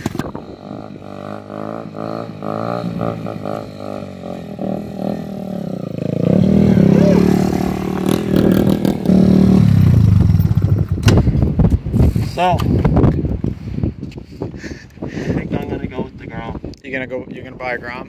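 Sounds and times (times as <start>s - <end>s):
motorbike engine revving: 0.0s - 11.1s.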